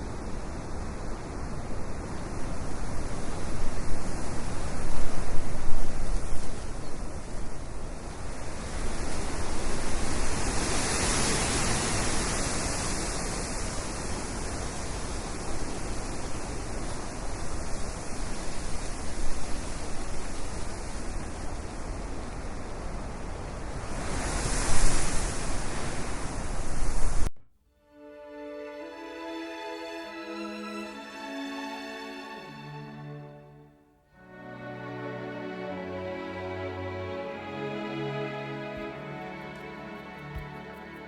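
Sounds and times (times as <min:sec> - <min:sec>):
ocean waves washing: 0:34.2 - 0:41.0.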